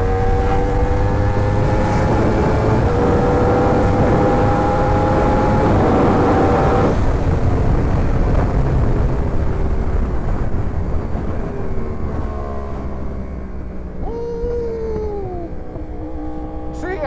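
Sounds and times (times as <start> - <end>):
wind rush: 0.0 - 13.1
motorcycle engine cruising: 0.0 - 17.0.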